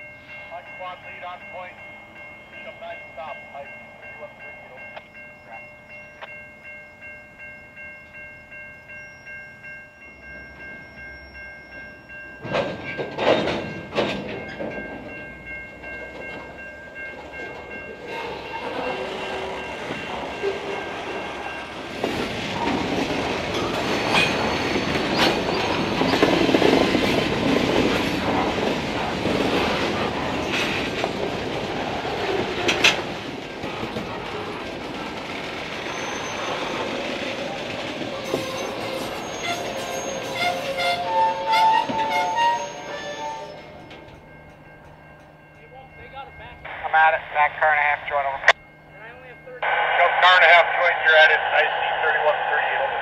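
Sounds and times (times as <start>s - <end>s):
crossing bell ringing: 0.0s - 52.8s
train couplers clanking: 7.4s - 46.8s
boxcars rolling with clickety-clack: 12.2s - 44.9s.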